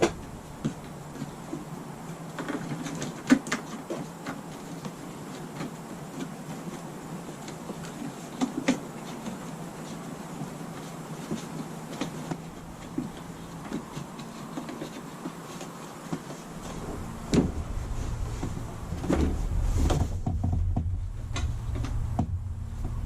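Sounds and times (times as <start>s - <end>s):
steady low rumble: 0.0s - 1.1s, 16.5s - 23.0s.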